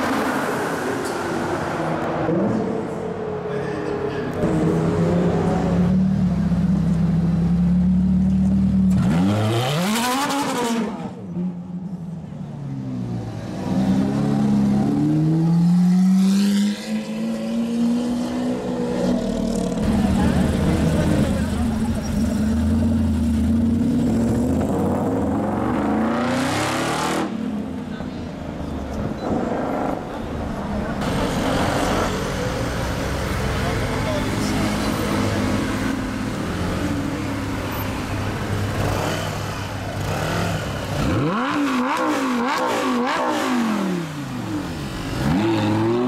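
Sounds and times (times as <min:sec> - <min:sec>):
supercar engine revving: 0:04.4 - 0:11.1, 0:33.5 - 0:46.0.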